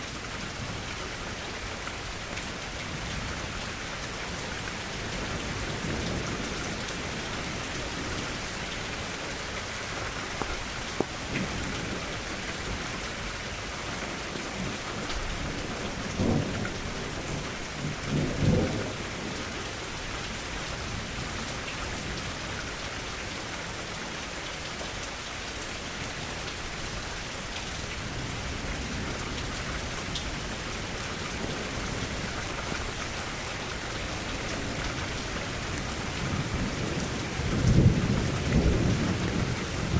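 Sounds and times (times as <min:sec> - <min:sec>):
heavy steady rain: 0:00.0 - 0:39.9
thunder rumbles: 0:14.5 - 0:19.8, 0:34.3 - 0:39.9.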